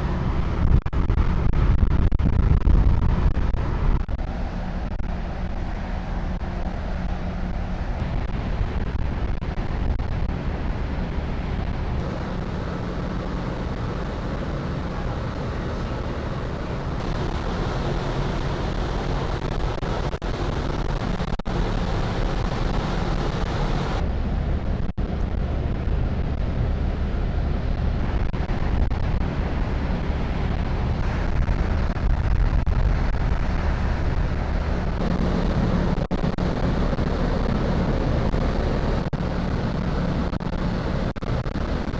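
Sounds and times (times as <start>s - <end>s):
wind buffeting microphone: 0.0s - 41.9s
ferry engines droning: 3.9s - 41.9s
sea rushing: 12.0s - 24.0s.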